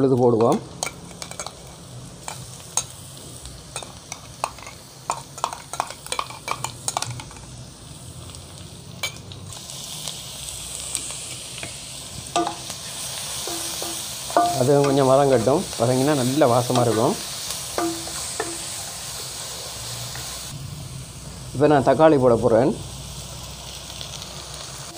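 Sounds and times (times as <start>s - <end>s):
onions sizzling in oil: 0.0s - 24.9s
steel spoon tapping a steel jar: 12.4s - 12.6s, 13.4s - 15.0s, 17.8s - 18.6s.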